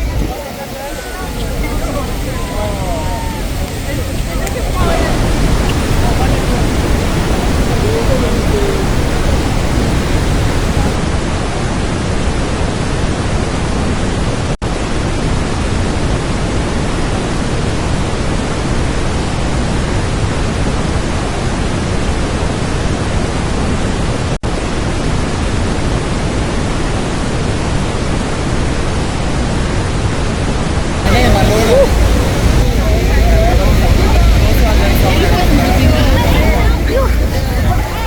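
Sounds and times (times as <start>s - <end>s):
wind buffeting microphone: 0.0s - 11.0s, 31.0s - 38.0s
waterfall roaring: 0.0s - 29.6s, 31.1s - 38.0s.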